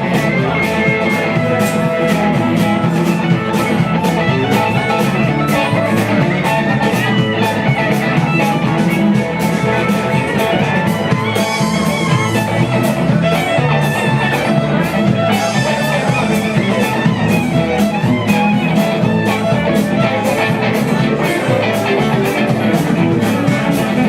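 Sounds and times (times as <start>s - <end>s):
country-rock band playing: 0.0s - 24.0s
lead guitar: 0.0s - 24.0s
steady drum beat: 0.0s - 24.0s.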